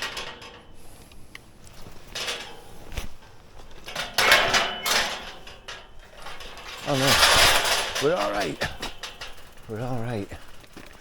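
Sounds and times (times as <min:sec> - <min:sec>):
bike rattling over rough trail: 0:00.0 - 0:11.0.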